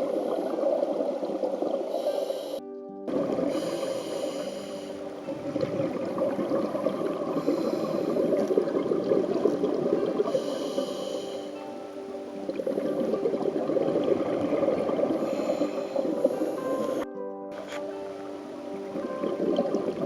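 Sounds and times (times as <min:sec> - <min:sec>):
exhaled bubbles gurgling underwater: 0:00.0 - 0:20.0
regulator inhale hiss: 0:01.8 - 0:02.6, 0:03.3 - 0:05.3, 0:07.3 - 0:08.6, 0:10.3 - 0:11.8, 0:15.1 - 0:17.0.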